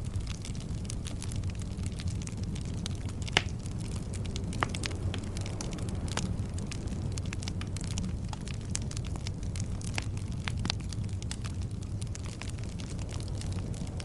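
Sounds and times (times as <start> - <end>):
burning logs crackling and popping: 0.0 - 14.0
fire flames rumbling: 0.0 - 14.0.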